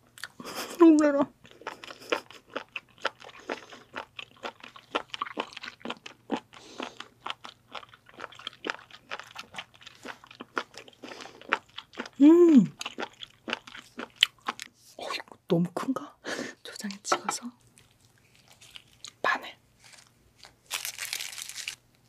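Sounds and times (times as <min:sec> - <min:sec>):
crunchy wet chewing: 0:01.4 - 0:14.8, 0:17.6 - 0:19.2.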